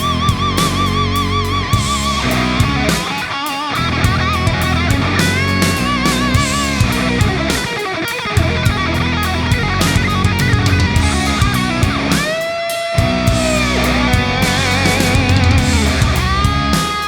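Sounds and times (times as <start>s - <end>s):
heavy metal music: 0.0s - 17.0s
bent electric guitar note: 13.0s - 16.8s.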